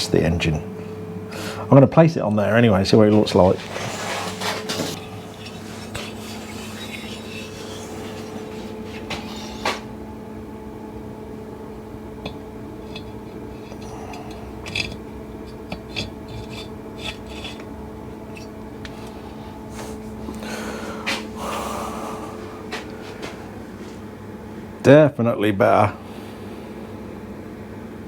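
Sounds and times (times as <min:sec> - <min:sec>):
steady background hum: 0:00.0 - 0:28.0
metal part knocking and clinking: 0:12.2 - 0:17.7.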